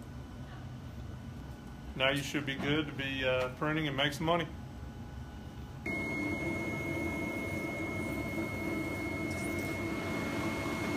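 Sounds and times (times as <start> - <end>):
machine whirring with high whine: 4.4 - 10.9.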